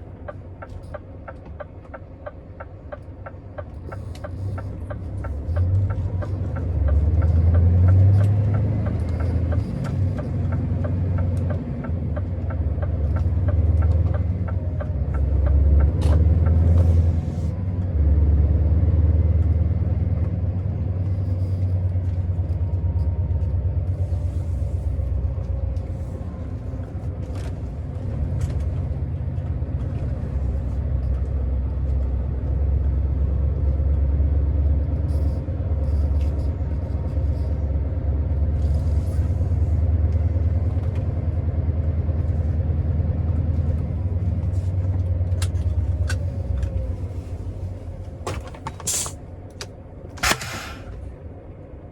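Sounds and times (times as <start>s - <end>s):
diesel truck engine rumbling: 0.0s - 51.9s
short hiss: 48.9s - 49.2s, 50.2s - 51.1s.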